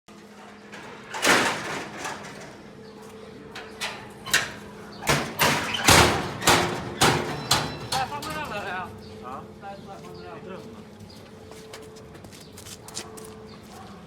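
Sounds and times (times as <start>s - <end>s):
sharp knocks and clatters: 3.6s - 8.7s.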